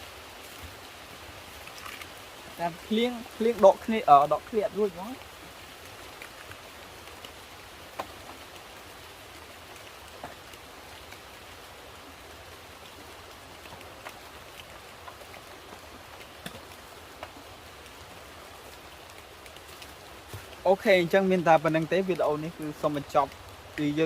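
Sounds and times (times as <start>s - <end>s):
raindrops ticking: 0.0s - 24.0s
steady rain: 0.0s - 24.0s.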